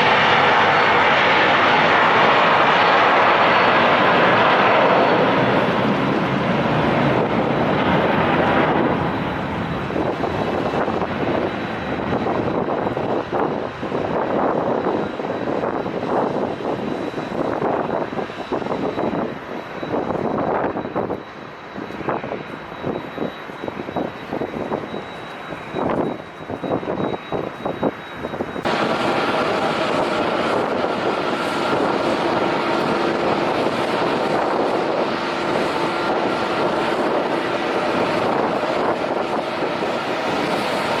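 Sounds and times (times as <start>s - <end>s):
airliner engines roaring: 0.0s - 41.0s
wind buffeting microphone: 0.0s - 41.0s
steady engine tones: 21.4s - 41.0s.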